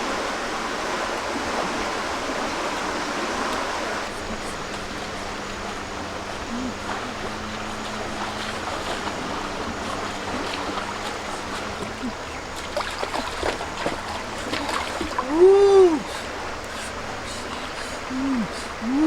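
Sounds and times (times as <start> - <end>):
running water rushing: 0.0 - 19.0
person exclaiming ooh: 15.2 - 16.1.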